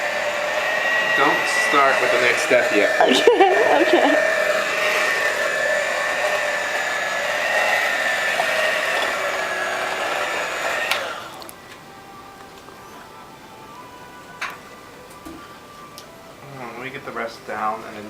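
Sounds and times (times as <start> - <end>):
electric mixer beating batter: 0.0 - 11.7.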